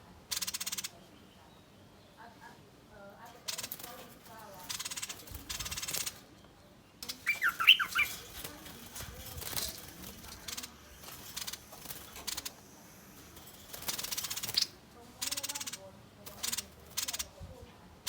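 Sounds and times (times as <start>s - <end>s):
bird scolding notes: 7.0s - 17.3s.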